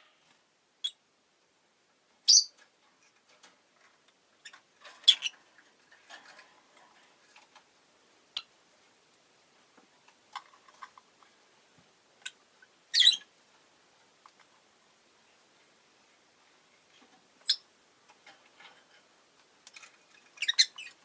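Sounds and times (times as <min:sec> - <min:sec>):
bird chirping: 0:02.2 - 0:02.6, 0:04.4 - 0:05.4, 0:12.2 - 0:13.3, 0:17.4 - 0:17.7, 0:20.1 - 0:21.0.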